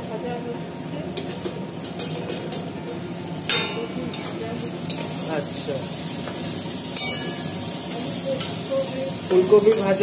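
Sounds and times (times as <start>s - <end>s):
cauliflower sizzling in pan: 1.1s - 10.0s.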